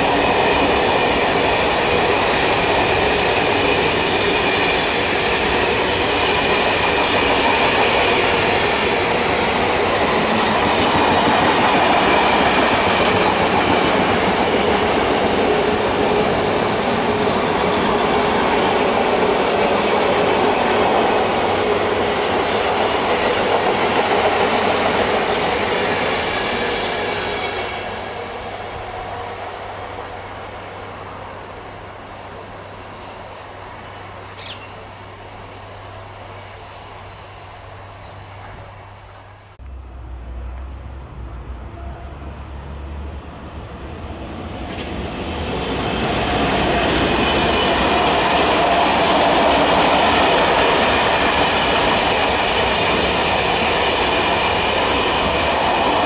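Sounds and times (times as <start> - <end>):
train wheels rolling on rails: 0.0 - 56.0
high squeal: 31.4 - 39.6.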